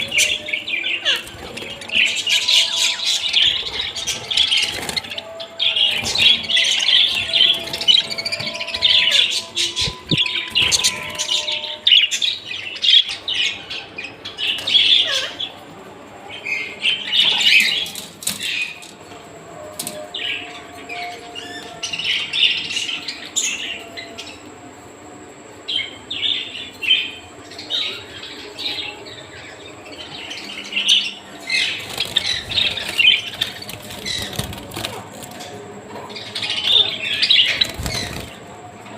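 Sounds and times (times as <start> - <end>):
parrots chirping and squawking: 0.0 - 15.6, 30.4 - 38.4.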